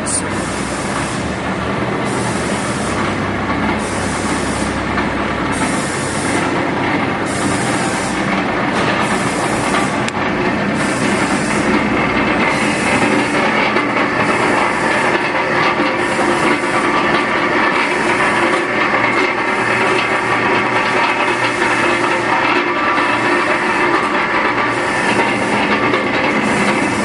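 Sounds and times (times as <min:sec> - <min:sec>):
mixer whirring with rhythmic hiss: 0:00.0 - 0:27.0.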